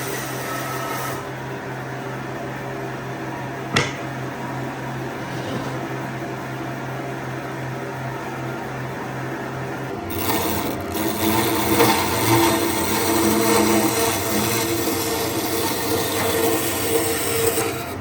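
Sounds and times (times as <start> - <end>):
power tool running: 0.0 - 1.3, 10.0 - 18.0
low machine hum: 0.0 - 18.0.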